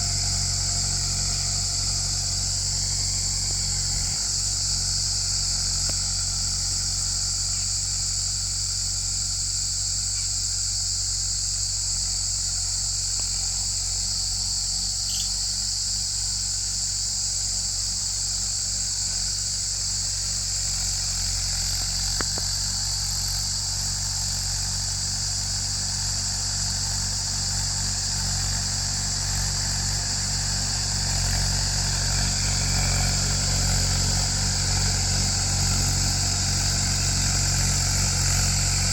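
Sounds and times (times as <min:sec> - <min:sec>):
crickets droning: 0:00.0 - 0:38.9
tractor diesel engine running: 0:00.0 - 0:38.9.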